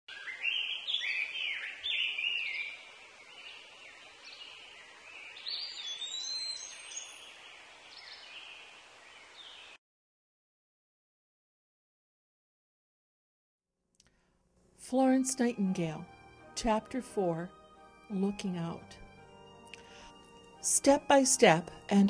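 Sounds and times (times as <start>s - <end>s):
faint steady hiss: 0.1s - 9.8s
wild birds singing: 0.1s - 9.8s.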